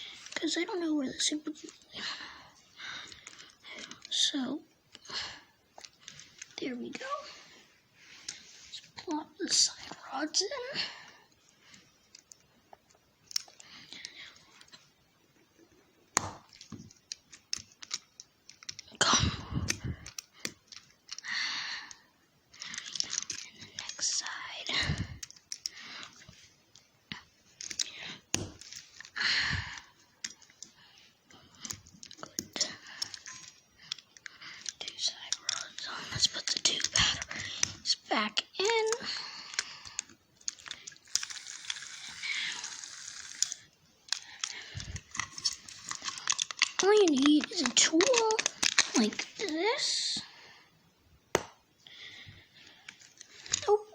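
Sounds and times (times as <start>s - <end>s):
small sharp plastic clicks: 38.6s - 49.6s
small plastic clicks and taps: 44.1s - 49.5s.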